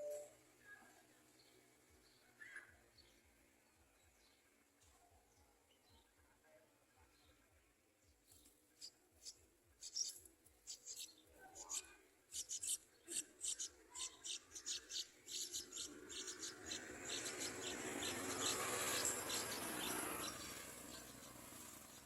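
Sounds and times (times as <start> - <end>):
nestlings chirping: 8.4 - 22.0.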